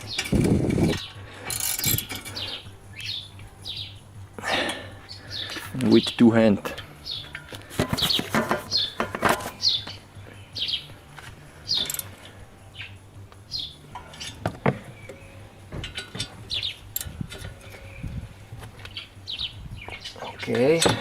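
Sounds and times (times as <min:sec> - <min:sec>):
small bird chirping: 0:02.3 - 0:04.1, 0:09.6 - 0:11.0, 0:16.4 - 0:20.8.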